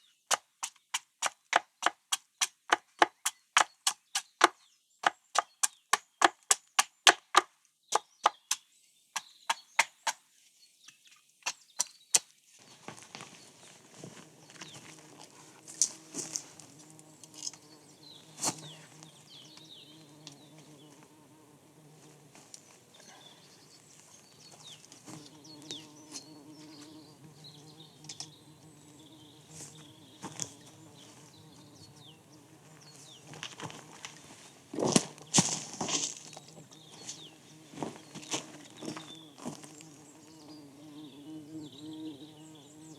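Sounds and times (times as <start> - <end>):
fly buzzing: 14.2 - 23.2, 24.8 - 34.2, 35.1 - 42.9.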